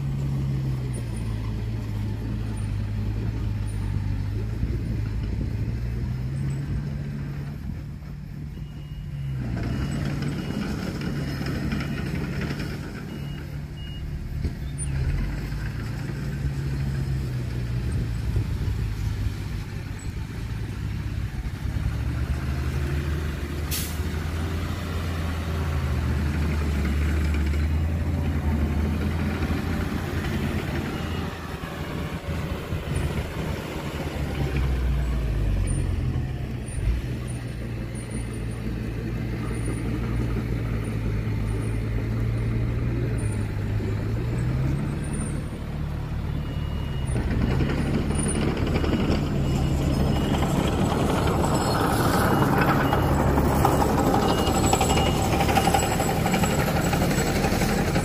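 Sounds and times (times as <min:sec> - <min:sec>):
heavy diesel engines revving: 0:00.0 - 0:58.0
brief sharp hiss: 0:23.7 - 0:24.1.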